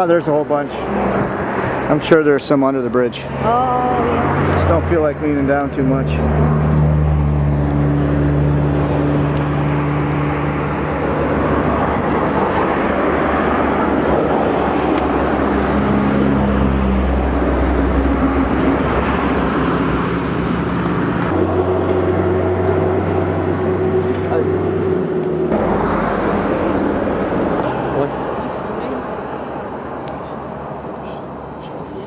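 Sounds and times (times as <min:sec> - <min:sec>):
road noise: 0:00.0 - 0:32.0
vehicle engine running: 0:03.3 - 0:31.8.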